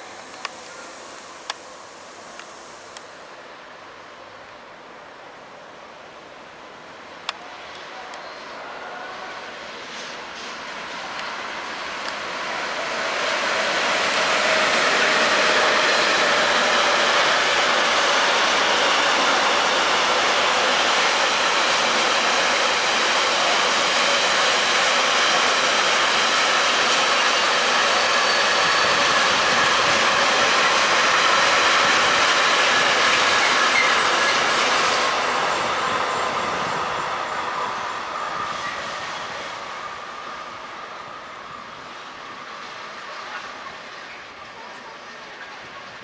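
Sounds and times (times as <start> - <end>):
wheels squealing: 33.1 - 35.0.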